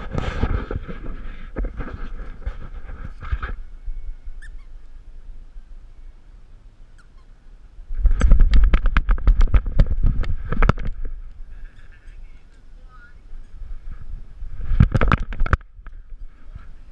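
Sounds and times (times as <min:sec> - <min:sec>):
camera knocking and thumping: 0:08.0 - 0:11.1, 0:14.7 - 0:15.7.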